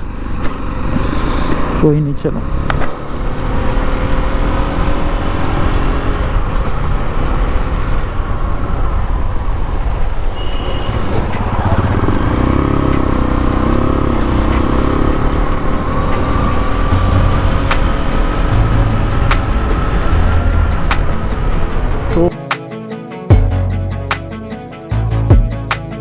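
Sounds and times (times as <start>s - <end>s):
road noise rumble: 0.0s - 26.0s
motorcycle engine running: 10.9s - 22.0s.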